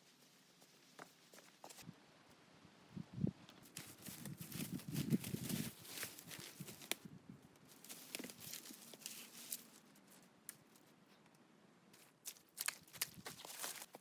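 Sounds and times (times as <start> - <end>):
rustling and crinkling: 0.0 - 2.4, 3.4 - 14.0
sharp clicks and crunches: 3.5 - 11.4, 12.0 - 14.0.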